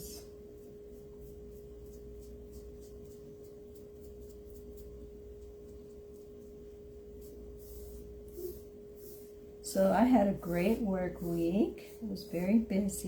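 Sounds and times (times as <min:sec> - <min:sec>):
paintbrush scratching on board: 0:00.5 - 0:13.0
steady single-pitched tone: 0:07.6 - 0:09.1.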